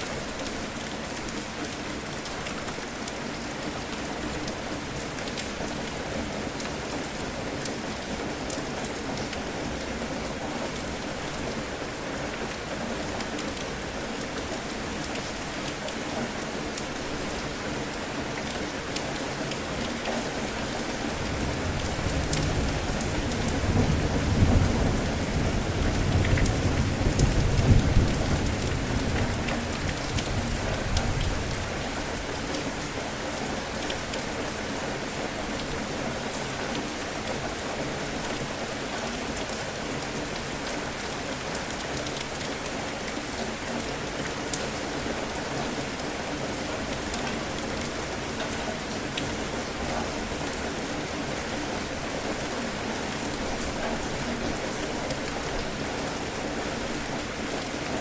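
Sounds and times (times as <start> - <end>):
rain falling: 0.0 - 58.0
low rumble of thunder: 21.3 - 31.9.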